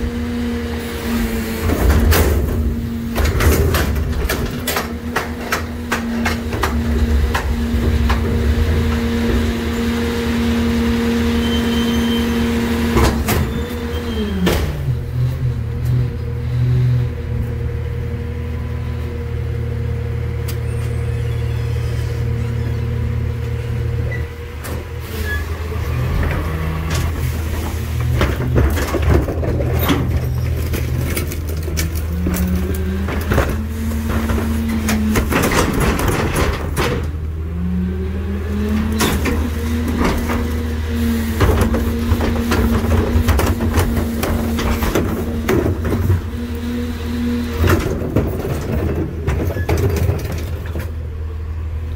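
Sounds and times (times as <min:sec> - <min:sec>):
garbage truck engine revving: 0:00.0 - 0:51.9
trash crunching and banging: 0:01.1 - 0:15.9, 0:24.5 - 0:37.7, 0:38.5 - 0:51.1.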